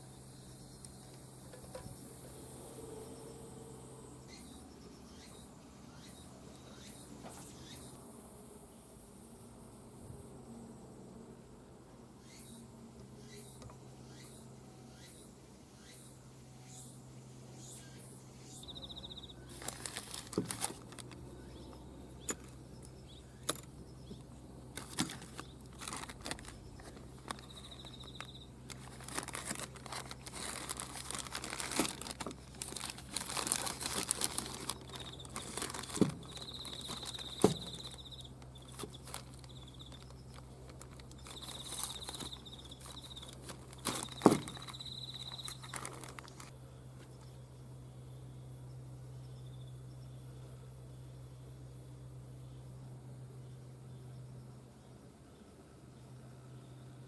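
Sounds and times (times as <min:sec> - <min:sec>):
steady low hum: 0:00.0 - 0:57.0
rustling: 0:19.4 - 0:21.2, 0:24.7 - 0:46.5.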